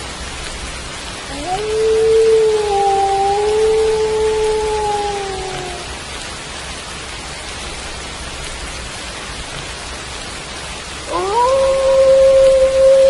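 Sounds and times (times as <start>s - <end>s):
steady rain falling: 0.0s - 13.0s
wolf howling: 1.3s - 6.0s, 11.1s - 13.0s.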